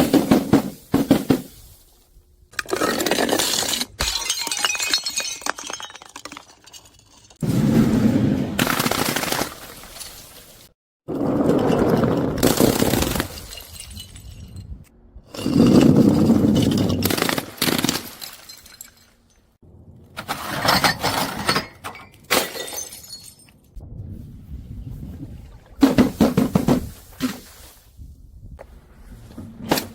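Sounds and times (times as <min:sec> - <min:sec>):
glass bottles crushed and shattering: 0:02.6 - 0:07.4, 0:08.6 - 0:10.7, 0:11.4 - 0:14.8, 0:15.4 - 0:19.6, 0:20.4 - 0:23.7.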